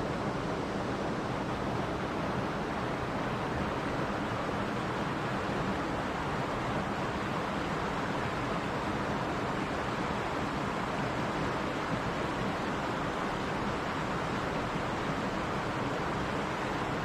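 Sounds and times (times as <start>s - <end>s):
mountain stream rushing over rocks: 0.0s - 17.0s.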